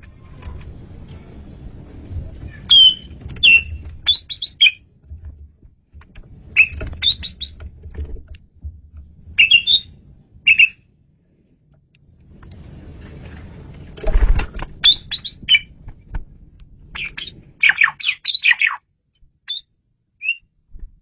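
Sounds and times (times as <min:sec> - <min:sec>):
low steady rumble: 0:00.0 - 0:18.2
starling singing whistles and chatters: 0:02.6 - 0:04.8, 0:06.6 - 0:07.6, 0:09.4 - 0:09.9, 0:10.5 - 0:10.8, 0:14.8 - 0:15.7, 0:17.0 - 0:18.8, 0:19.5 - 0:20.4.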